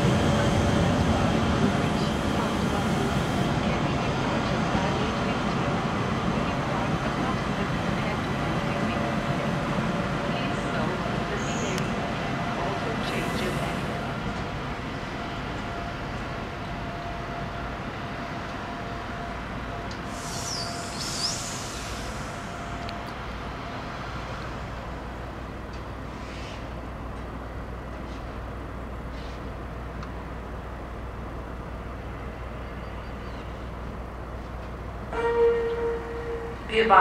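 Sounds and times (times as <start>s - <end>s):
train rumbling: 0.0s - 37.0s
high hiss with squeal: 20.1s - 22.6s.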